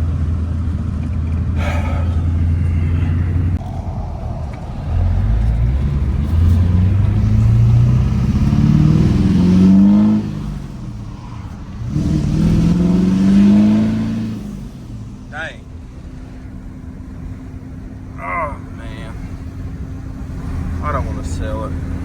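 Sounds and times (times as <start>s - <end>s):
diesel engine accelerating: 0.0s - 22.0s.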